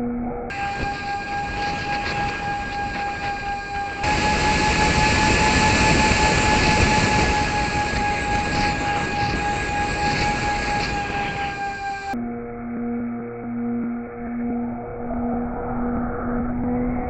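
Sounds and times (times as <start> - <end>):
drone propellers whining: 0.5 - 12.2
rushing air: 0.5 - 12.2.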